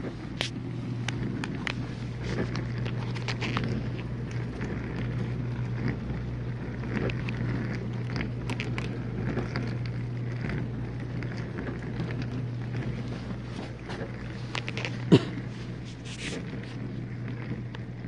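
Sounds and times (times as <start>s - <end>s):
dishwasher pump hum: 0.0s - 18.0s
water spraying inside dishwasher: 15.6s - 16.7s.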